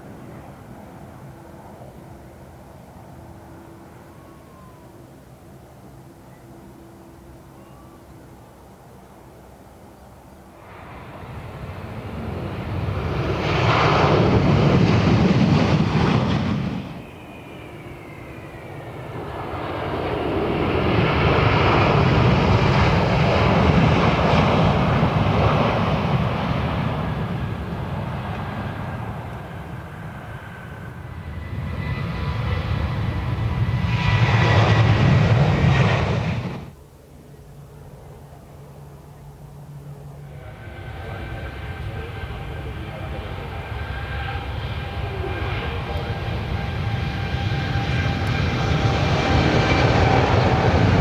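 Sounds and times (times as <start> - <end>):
airliner engine noise: 0.0 - 51.0.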